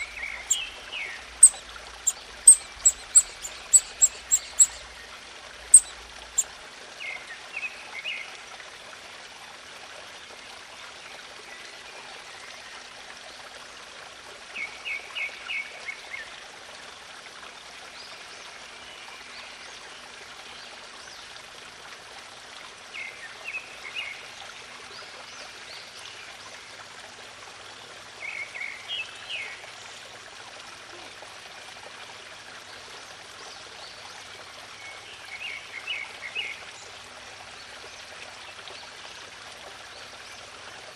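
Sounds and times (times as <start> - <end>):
bird chirping: 0.0 - 5.0, 5.7 - 6.4.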